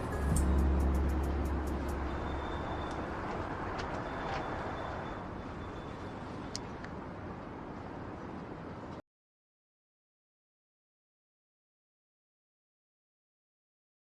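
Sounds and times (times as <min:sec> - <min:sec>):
distant traffic: 0:00.0 - 0:09.0.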